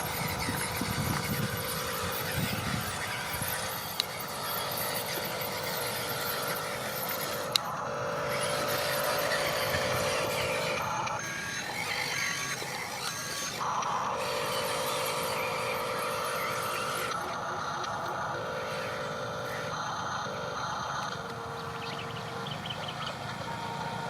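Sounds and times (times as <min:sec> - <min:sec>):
sharp clicks: 0:00.0 - 0:18.2
small electric motors whining: 0:00.0 - 0:24.0.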